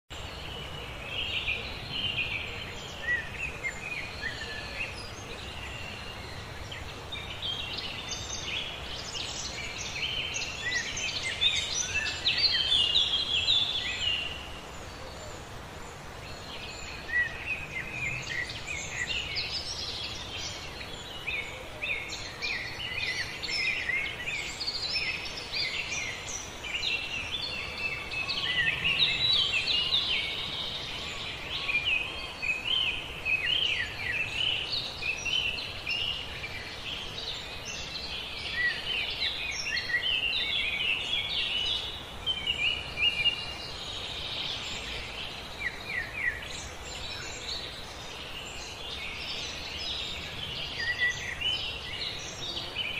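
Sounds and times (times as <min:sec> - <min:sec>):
forest ambience hiss: 0:00.1 - 0:52.9
songbirds chirping: 0:00.1 - 0:52.9.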